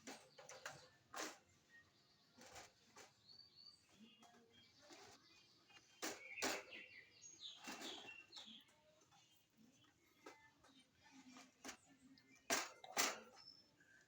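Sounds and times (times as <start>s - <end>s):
small bird chirping: 0.0s - 9.4s.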